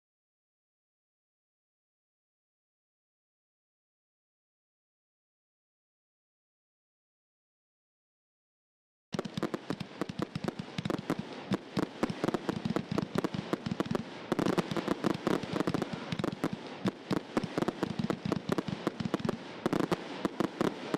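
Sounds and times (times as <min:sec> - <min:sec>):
fireworks banging and crackling: 0:09.2 - 0:20.9.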